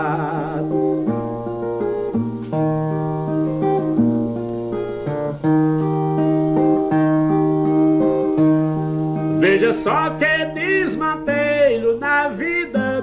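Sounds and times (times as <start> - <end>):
man singing: 0.0 - 1.1, 9.3 - 13.0.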